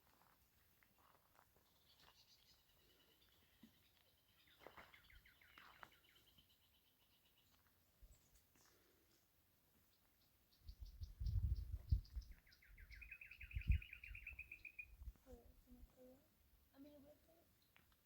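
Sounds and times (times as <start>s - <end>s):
faint bird song trill: 1.0s - 9.2s, 9.8s - 15.4s, 16.8s - 18.0s
down-sweeping bird calls: 10.6s - 15.0s.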